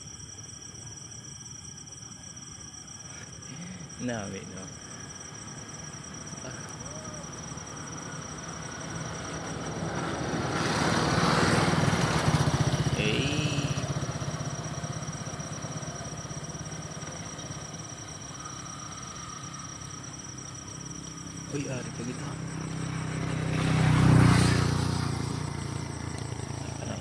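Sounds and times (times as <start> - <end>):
high insect trill: 0.0 - 27.0
vehicle engine passing by: 7.3 - 17.7, 21.4 - 27.0.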